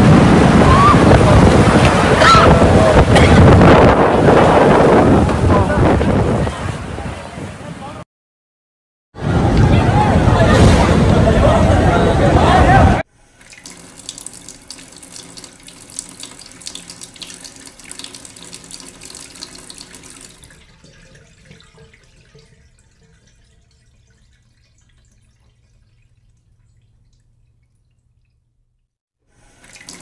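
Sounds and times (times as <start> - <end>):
rain pouring and splattering: 13.4 - 22.8.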